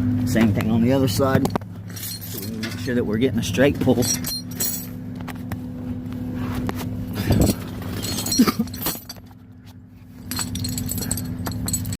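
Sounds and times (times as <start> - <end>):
chain clinking against metal: 1.4 - 3.0, 3.8 - 5.0, 7.2 - 9.4, 10.2 - 12.0.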